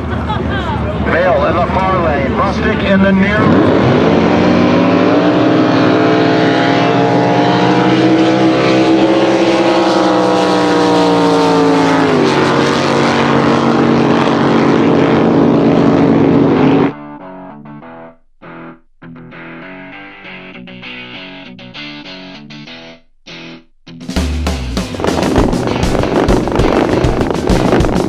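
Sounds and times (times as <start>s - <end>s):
racing boat engines: 0.0s - 17.0s, 24.6s - 28.0s
rush of noise: 0.0s - 17.0s, 24.5s - 28.0s.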